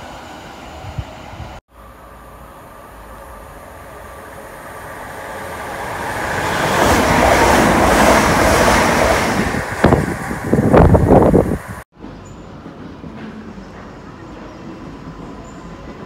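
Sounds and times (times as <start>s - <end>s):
train wheels rushing on rail: 2.6s - 16.0s
slipstream gusts buffeting microphone: 6.9s - 11.8s.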